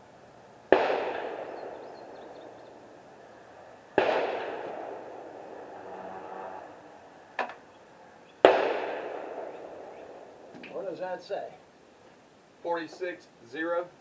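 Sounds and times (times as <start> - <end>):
rifle shot echoing: 0.7 - 3.0, 3.8 - 5.8, 8.4 - 10.5.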